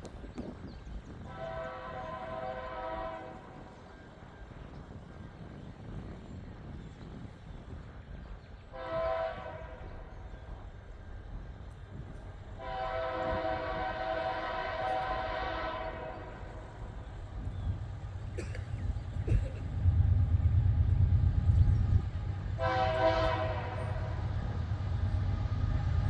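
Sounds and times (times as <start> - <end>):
locomotive air horn blasts: 1.2 - 3.8, 8.7 - 10.0, 12.6 - 17.0, 22.6 - 24.4.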